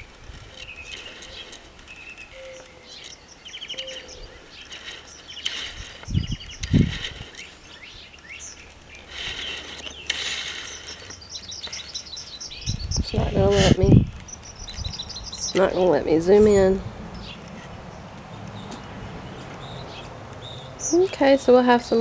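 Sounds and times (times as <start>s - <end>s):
small birds chirping: 0.0s - 22.0s
dull low thumps: 6.0s - 7.2s.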